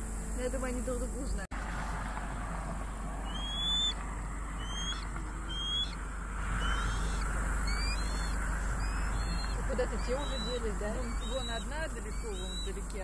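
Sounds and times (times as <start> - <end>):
steady low rumble: 0.0 - 13.0
bird whistling rising notes: 3.2 - 12.9.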